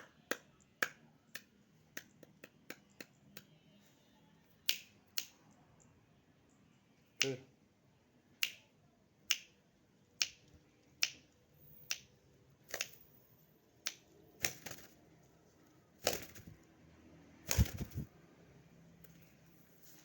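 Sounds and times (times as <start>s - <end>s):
finger snaps: 0.0s - 3.6s, 4.6s - 5.4s, 8.4s - 8.7s, 9.3s - 9.6s, 10.2s - 11.3s, 11.9s - 12.1s, 13.8s - 14.0s
fluttering bursts: 16.0s - 16.6s, 17.5s - 18.1s.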